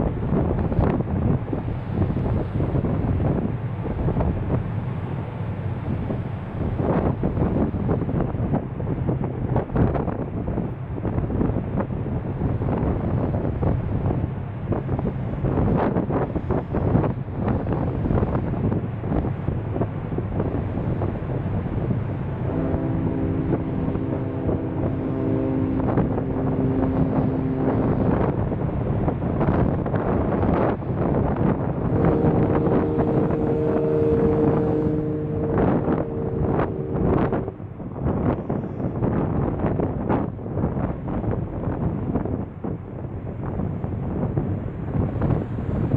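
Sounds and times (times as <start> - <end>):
wind buffeting microphone: 0.0 - 45.9
low engine drone: 19.3 - 39.1
ferry horn blast: 22.3 - 38.4.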